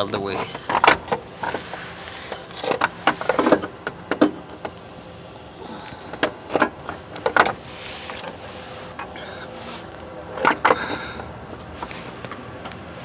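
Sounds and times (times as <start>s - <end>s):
metal clanks and knocks: 0.0s - 1.7s, 2.3s - 4.8s.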